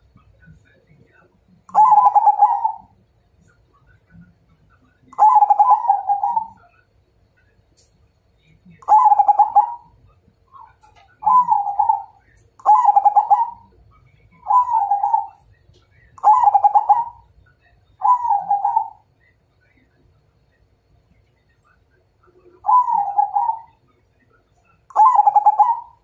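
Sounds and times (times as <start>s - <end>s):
dove cooing: 1.7s - 2.9s, 5.2s - 6.7s, 8.8s - 9.9s, 10.6s - 13.8s, 14.4s - 15.4s, 16.2s - 17.3s, 18.0s - 19.0s, 22.4s - 23.8s, 24.9s - 26.0s.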